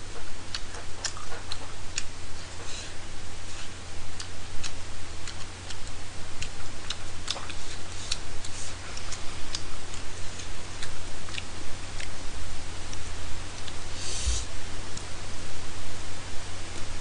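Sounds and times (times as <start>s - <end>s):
chewing mouth clicks: 4.2s - 12.1s.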